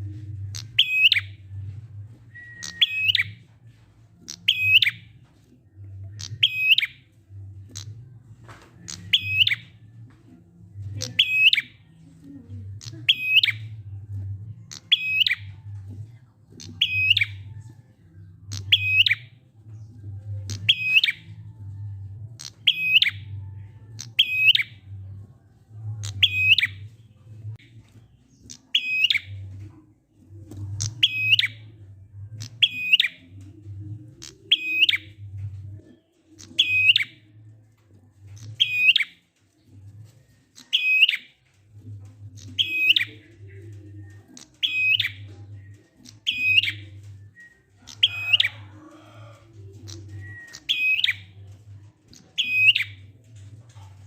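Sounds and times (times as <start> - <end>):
low hum: 0.0 - 6.5
bird chirping: 2.3 - 3.4, 4.2 - 5.1, 5.9 - 8.0, 8.8 - 9.9.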